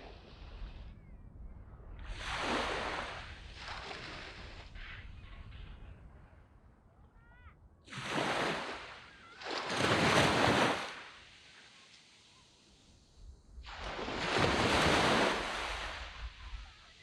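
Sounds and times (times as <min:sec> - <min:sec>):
waves washing up a sand beach: 0:02.0 - 0:05.6, 0:07.9 - 0:17.0.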